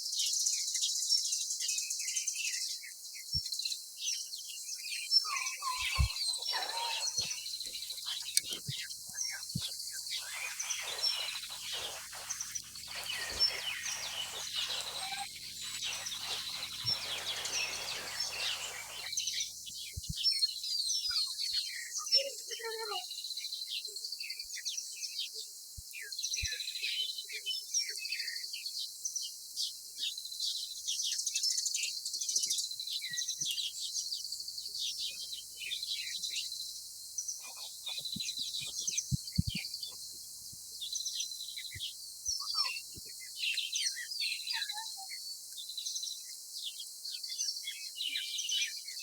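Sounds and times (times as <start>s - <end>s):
small birds chirping: 0.0s - 49.0s
high-pitched animal chirps: 5.3s - 8.3s, 10.1s - 19.1s
steady high hiss: 7.3s - 19.3s.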